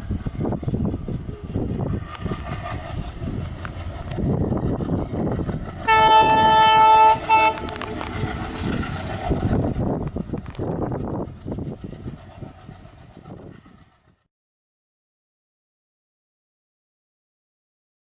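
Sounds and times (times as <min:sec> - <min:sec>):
train wheels clattering on rails: 0:00.0 - 0:14.2
train horn blasts: 0:05.8 - 0:08.0.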